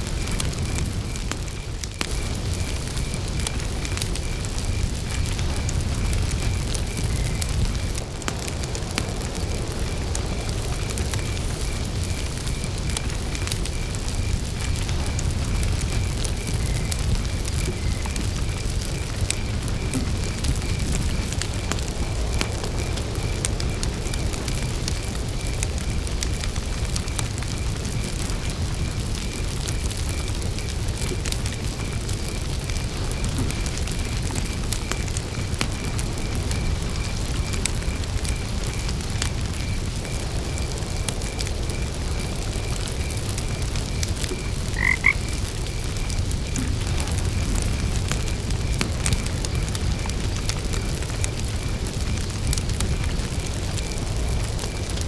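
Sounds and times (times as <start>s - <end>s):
campfire crackling: 0.0s - 55.0s
crickets chirping: 0.0s - 55.0s
frog croaking: 44.3s - 46.7s.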